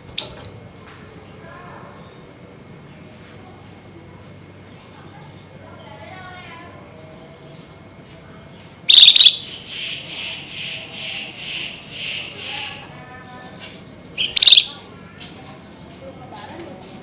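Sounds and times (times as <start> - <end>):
sharp bird call: 8.9 - 12.8, 14.2 - 14.9
buzzy bird notes: 8.9 - 15.0.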